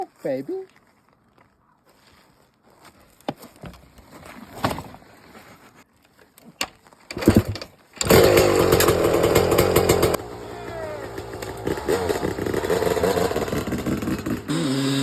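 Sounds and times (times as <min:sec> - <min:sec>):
dirt bike engine starting and revving: 0:07.1 - 0:15.0.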